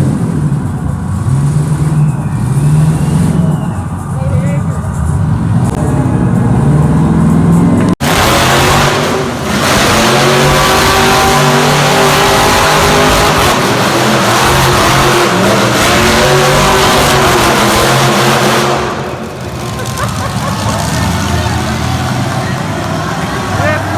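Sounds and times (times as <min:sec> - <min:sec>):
continuous noisy roar: 0:00.0 - 0:23.9
engine revving hard: 0:06.6 - 0:23.9.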